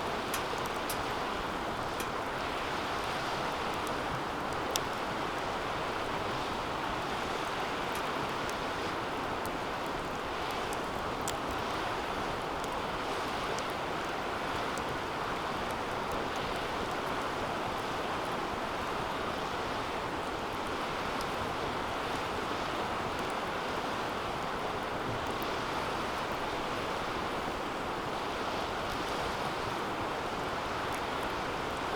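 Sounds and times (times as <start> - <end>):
fire flame rushing: 0.0 - 5.0
wood crackles and pops: 0.0 - 19.5.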